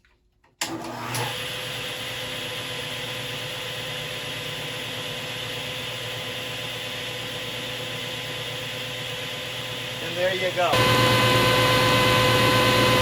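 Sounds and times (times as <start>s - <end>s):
table saw running: 0.7s - 13.0s.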